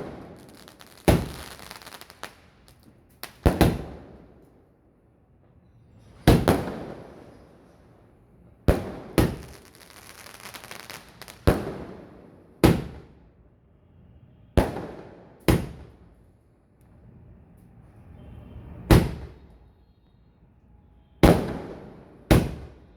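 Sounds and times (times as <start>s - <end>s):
firework crackling hiss: 0.0s - 3.8s, 9.2s - 11.5s
firework bangs echoing: 0.0s - 4.3s, 6.2s - 7.3s, 8.7s - 13.1s, 14.6s - 16.0s, 18.9s - 19.4s, 21.2s - 22.8s.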